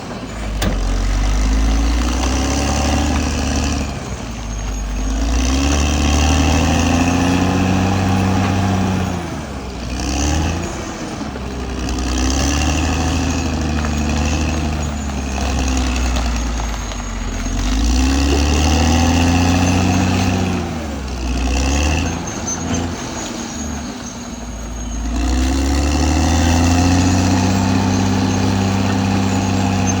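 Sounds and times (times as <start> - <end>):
bulldozer diesel engine surging: 0.0 - 30.0.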